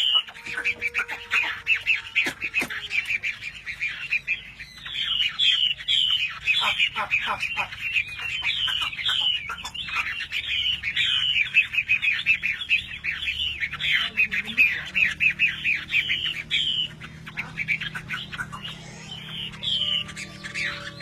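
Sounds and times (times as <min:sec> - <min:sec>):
bird singing chirps and whistles: 0:00.0 - 0:21.0.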